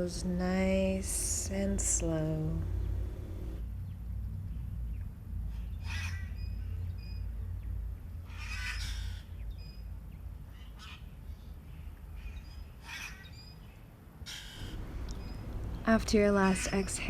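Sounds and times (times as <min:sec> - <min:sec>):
steady low rumble: 0:00.0 - 0:03.6, 0:14.6 - 0:17.0
harsh bird calls: 0:02.6 - 0:03.6, 0:14.6 - 0:17.0
high bird chirps: 0:14.6 - 0:16.9.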